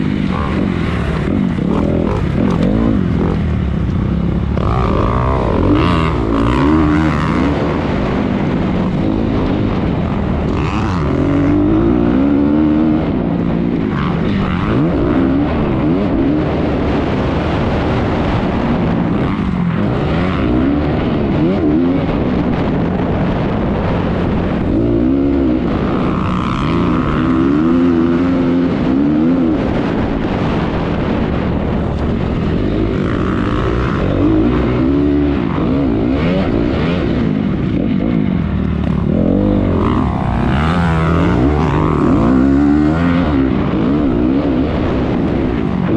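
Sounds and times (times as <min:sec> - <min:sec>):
motocross bike engine revving: 0:00.0 - 0:45.9.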